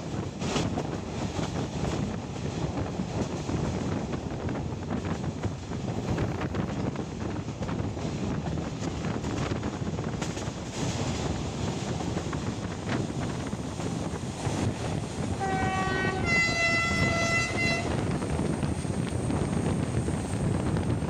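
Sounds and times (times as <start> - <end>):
train rumbling: 0.0 - 21.0
two-note train horn: 15.4 - 18.2.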